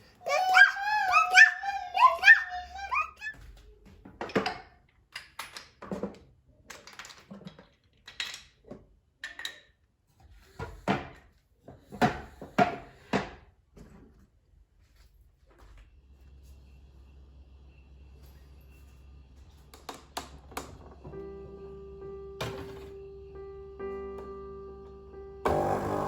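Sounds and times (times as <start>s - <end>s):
household objects knocking and clattering: 3.9s - 9.7s, 10.6s - 14.2s.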